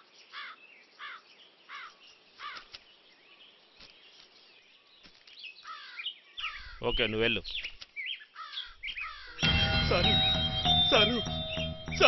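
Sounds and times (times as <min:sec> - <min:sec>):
faint bird calls: 0:00.0 - 0:09.4
bird harsh call: 0:05.6 - 0:06.8, 0:08.2 - 0:09.5.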